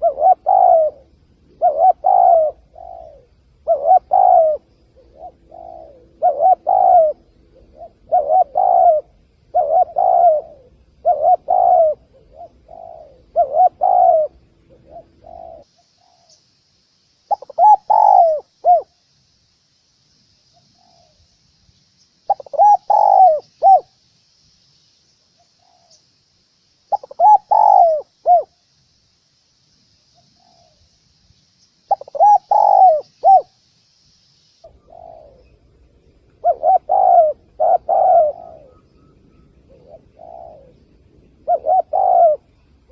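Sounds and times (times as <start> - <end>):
dove cooing: 0.0 - 16.3, 17.3 - 19.0, 22.3 - 24.0, 26.9 - 28.6, 31.9 - 33.6, 34.6 - 42.9.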